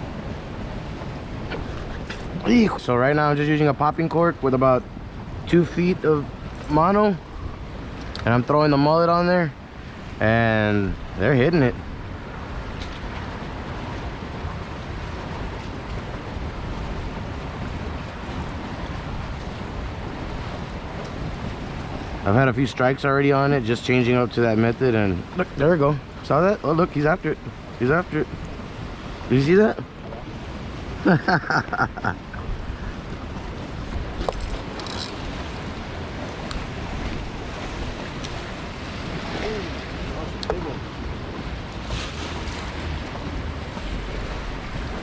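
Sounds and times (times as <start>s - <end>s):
choppy water: 0.0s - 45.0s
wind buffeting microphone: 9.2s - 45.0s.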